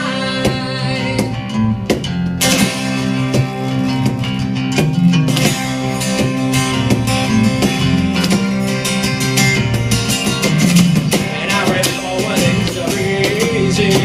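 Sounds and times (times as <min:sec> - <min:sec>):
acoustic band playing rock: 0:00.0 - 0:14.0
strummed acoustic guitar: 0:00.0 - 0:14.0.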